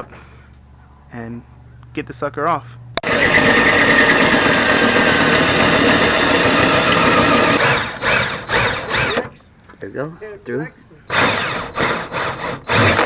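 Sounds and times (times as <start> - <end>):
power drill drilling metal: 3.0 - 9.4, 11.0 - 13.0.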